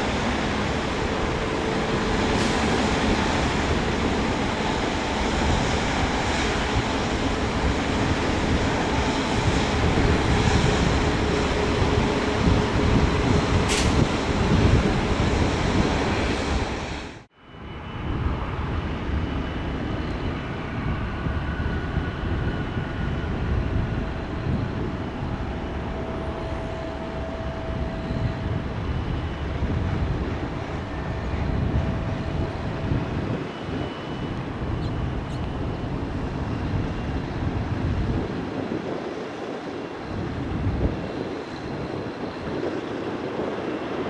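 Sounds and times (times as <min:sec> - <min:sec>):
jet engines rumbling: 0:00.0 - 0:44.0
faint engine whine: 0:17.2 - 0:44.0.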